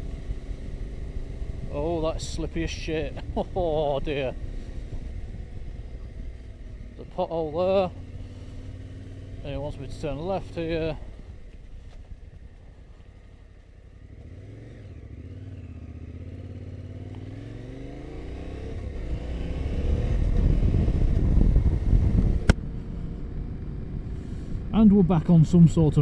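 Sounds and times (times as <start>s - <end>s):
motorcycle engine accelerating: 0.0s - 26.0s
rushing wind noise: 18.9s - 23.4s.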